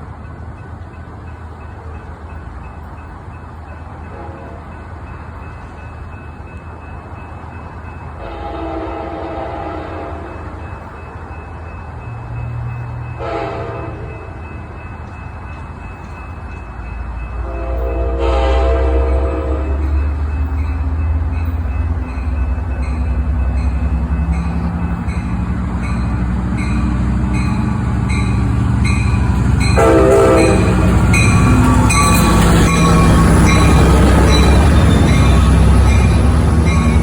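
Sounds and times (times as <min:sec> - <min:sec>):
diesel locomotive rumble: 0:00.0 - 0:37.0
train horn: 0:04.1 - 0:04.8, 0:08.2 - 0:10.6, 0:13.2 - 0:14.4, 0:17.4 - 0:20.1, 0:29.6 - 0:37.0
bell ringing: 0:19.6 - 0:37.0.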